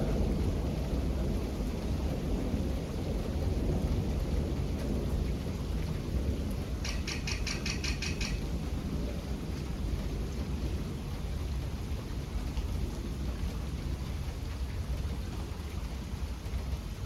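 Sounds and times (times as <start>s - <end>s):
steady rain: 0.0s - 17.0s
thunder rumble: 0.0s - 17.0s
high ticks: 6.8s - 8.4s.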